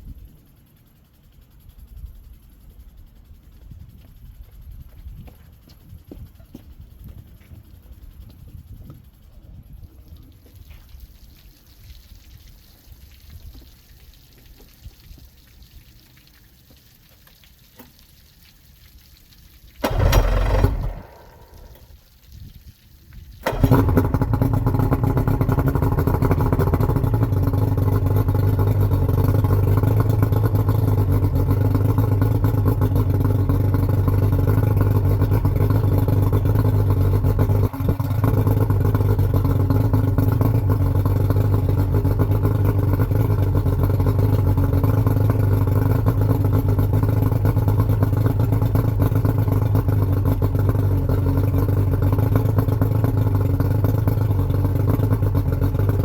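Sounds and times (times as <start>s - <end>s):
outboard motor starting and running: 19.7s - 22.0s, 23.3s - 56.0s.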